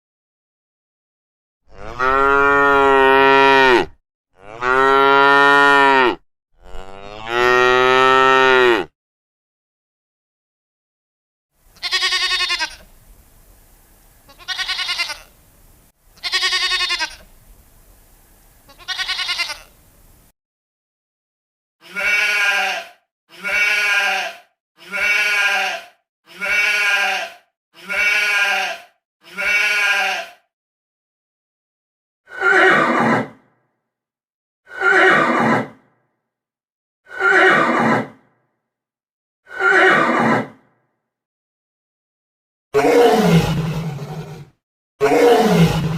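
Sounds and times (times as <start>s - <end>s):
sheep bleating: 1.7s - 8.9s, 11.8s - 12.9s, 14.3s - 15.3s, 16.2s - 17.3s, 18.7s - 19.7s, 21.8s - 30.4s
horse whinnying: 39.6s - 40.6s, 42.8s - 45.9s.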